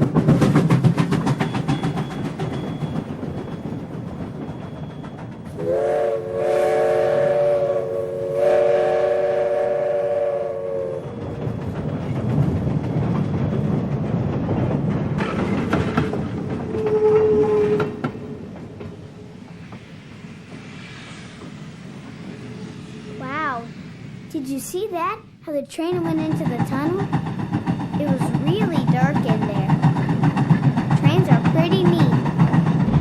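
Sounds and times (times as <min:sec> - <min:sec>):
train wheels clattering on track: 0:00.0 - 0:33.0
train whistle chord: 0:05.6 - 0:11.2, 0:16.8 - 0:18.4.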